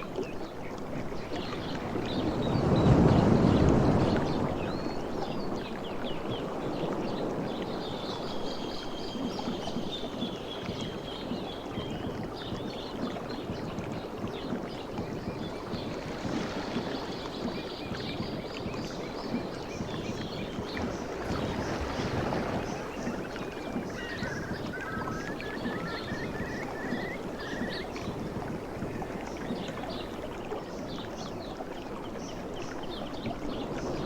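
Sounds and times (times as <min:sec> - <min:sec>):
sea waves washing on shore: 0:00.0 - 0:34.0
faint high chirping: 0:21.3 - 0:28.1.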